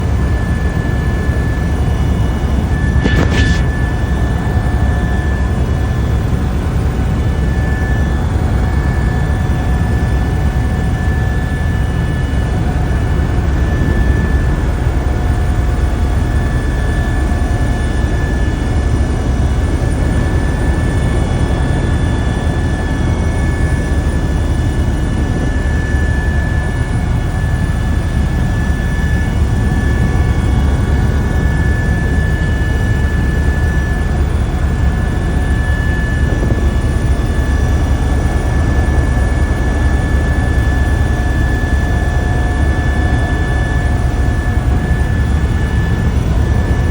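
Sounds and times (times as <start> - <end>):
helicopter rotor and engine rumble: 0.0 - 46.9
high whine: 0.3 - 8.8, 21.6 - 46.9.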